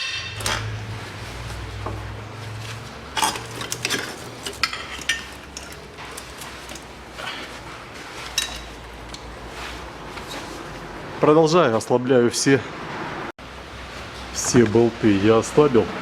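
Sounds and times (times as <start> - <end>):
metal tools clinking on bolts: 0.0 - 0.8, 3.1 - 6.9, 8.3 - 9.2.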